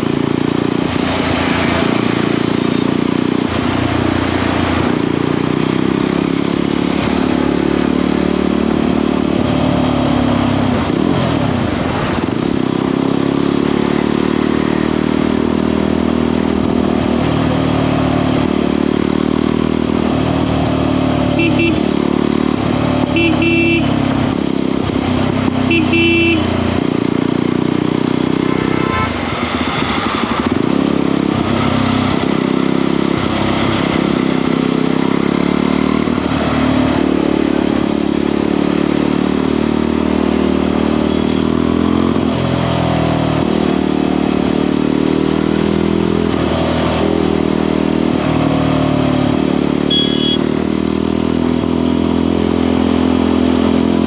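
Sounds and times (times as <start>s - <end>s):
motorcycle engine running: 0.0s - 54.0s
short horn beeps: 21.4s - 21.9s, 23.1s - 24.0s, 25.7s - 26.5s, 49.8s - 50.5s.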